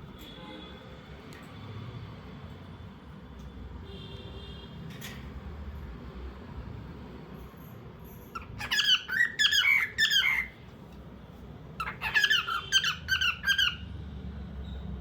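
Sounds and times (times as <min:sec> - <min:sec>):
cockatiel chirping: 0:08.4 - 0:10.6, 0:11.8 - 0:13.9.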